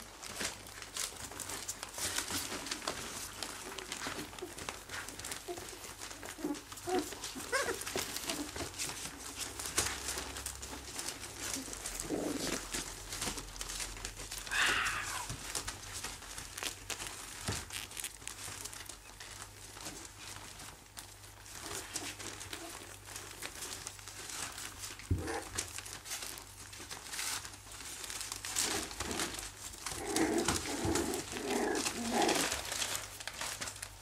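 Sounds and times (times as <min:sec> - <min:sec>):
rustling and crinkling: 0:00.0 - 0:34.0
puppies squeaking and whining: 0:01.0 - 0:13.4.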